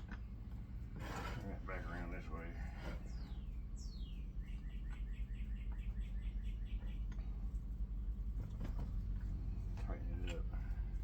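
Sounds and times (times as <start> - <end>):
low steady hum: 0.0 - 11.0
short repeated bird chirps: 3.3 - 7.2.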